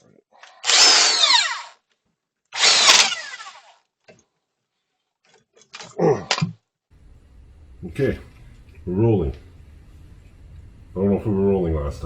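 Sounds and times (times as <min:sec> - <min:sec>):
power tool motor whining: 0:00.6 - 0:01.8, 0:02.6 - 0:03.8.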